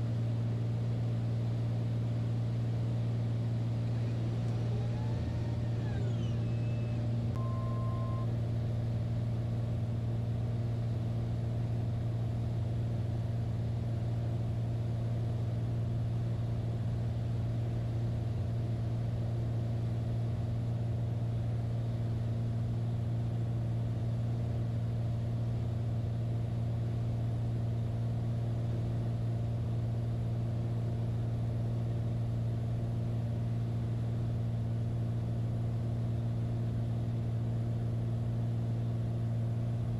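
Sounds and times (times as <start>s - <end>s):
light aircraft engine droning: 0.0s - 39.9s
short two-pitch tone: 7.4s - 8.3s.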